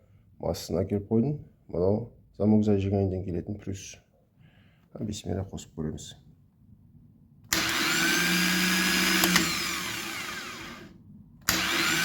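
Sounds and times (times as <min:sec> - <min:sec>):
starter motor whine: 0:07.5 - 0:12.0
click: 0:09.2 - 0:09.5.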